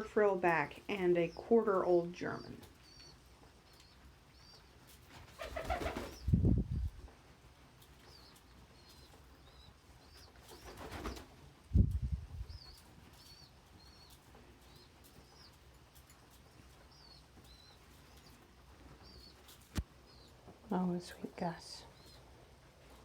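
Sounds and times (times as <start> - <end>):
pigeons flapping wings: 5.1 - 6.3, 10.3 - 11.5.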